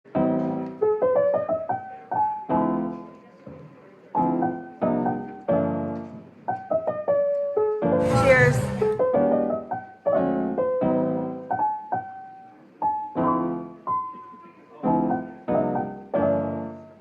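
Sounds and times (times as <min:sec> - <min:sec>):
piano music: 0:08.0 - 0:09.6.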